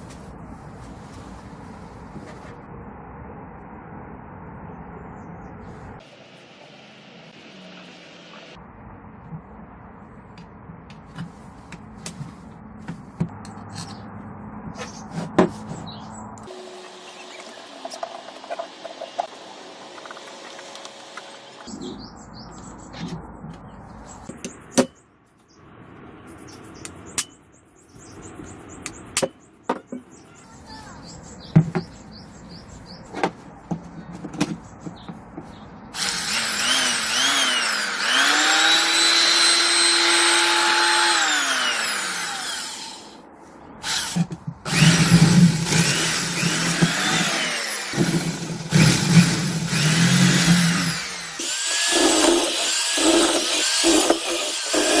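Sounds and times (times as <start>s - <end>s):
electric drill motor whining: 36.0s - 43.2s, 43.8s - 55.0s.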